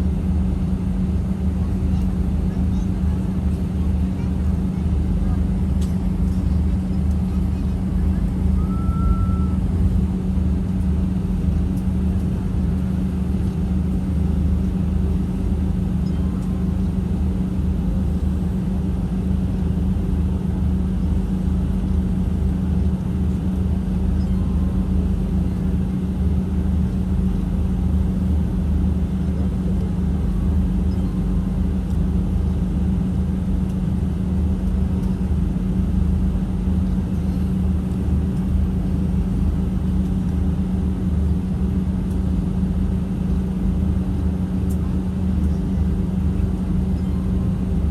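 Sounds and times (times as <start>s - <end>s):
jet engine drone in cabin: 0.0s - 47.9s
faint tone: 8.6s - 9.6s.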